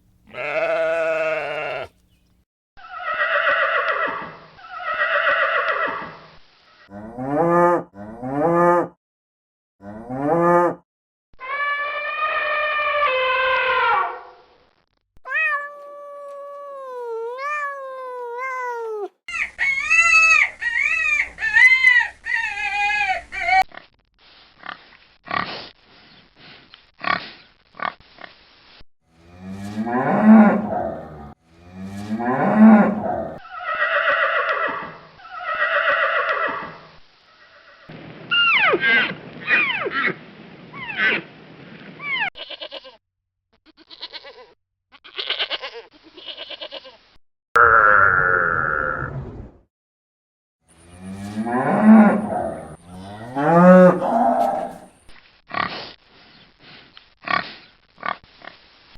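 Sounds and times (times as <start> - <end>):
farm animal calls: 0.3 - 2.2, 15.3 - 23.6, 50.8 - 54.9.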